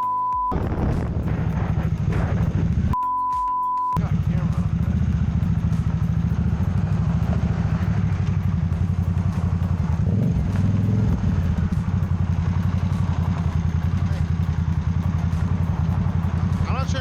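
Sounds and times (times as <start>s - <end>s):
motorcycle engine idling: 4.0s - 17.0s.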